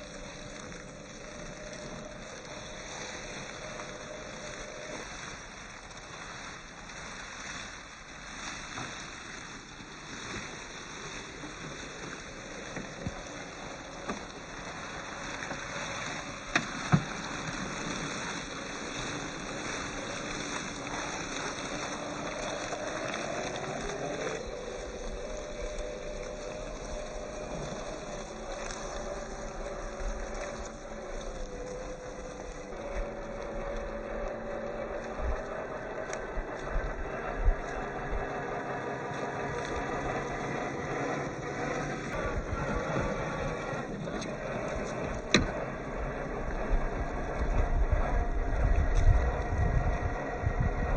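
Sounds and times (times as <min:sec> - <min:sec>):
scattered ticks: 0:00.0 - 0:50.9
electric motor and gearbox whining: 0:10.3 - 0:50.9.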